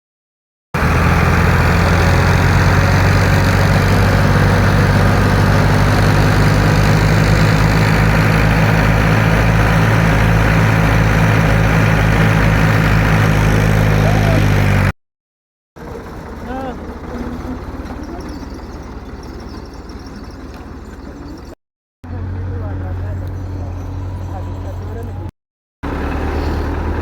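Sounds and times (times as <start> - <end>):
tractor diesel engine running: 0.8 - 14.9, 15.8 - 27.0.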